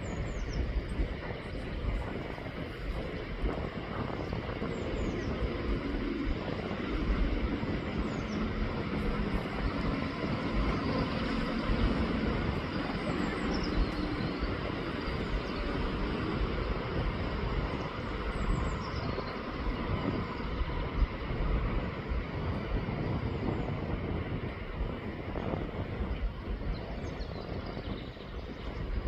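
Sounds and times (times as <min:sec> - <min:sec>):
small birds chirping: 0:00.0 - 0:21.2
rushing outdoor wind rumble: 0:00.0 - 0:29.0.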